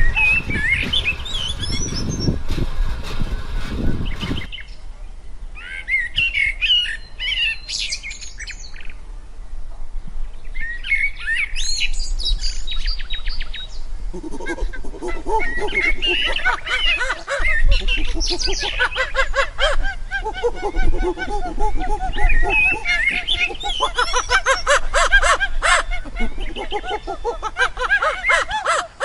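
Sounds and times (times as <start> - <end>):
low rumbling: 0.0 - 4.8
small birds chirping: 0.0 - 4.8, 20.7 - 28.5.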